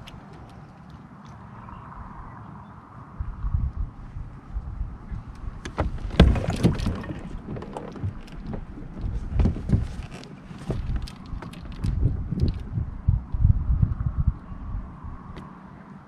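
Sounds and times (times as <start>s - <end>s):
low uneven thumping: 5.6s - 11.1s.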